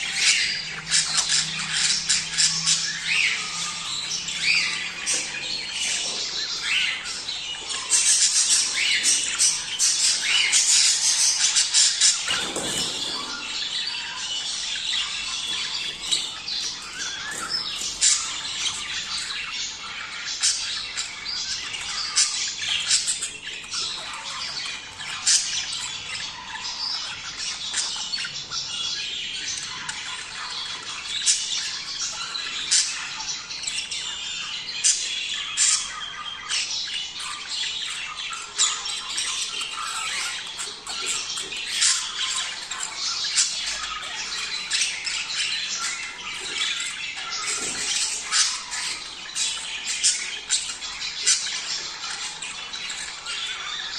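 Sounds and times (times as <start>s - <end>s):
bird squawks: 0.0s - 28.0s
budgerigars chattering: 0.0s - 53.9s.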